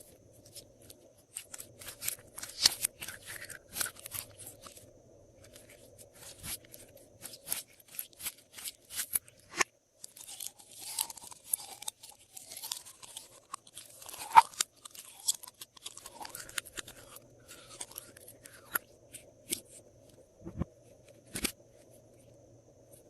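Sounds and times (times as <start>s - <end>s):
faint steady hum: 0.0s - 23.0s
slime crackling and crunching: 10.0s - 18.7s.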